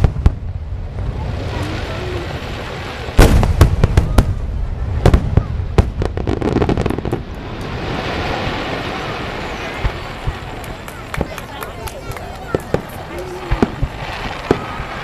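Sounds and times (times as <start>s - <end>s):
fireworks bangs: 0.0s - 15.0s
quick small firework pops: 3.2s - 4.4s.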